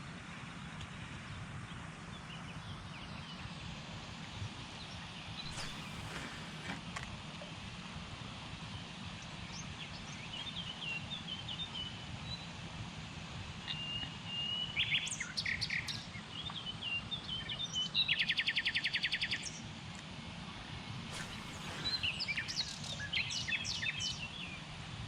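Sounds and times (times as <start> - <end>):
small songbirds chirping: 4.8 - 6.7, 21.1 - 24.7.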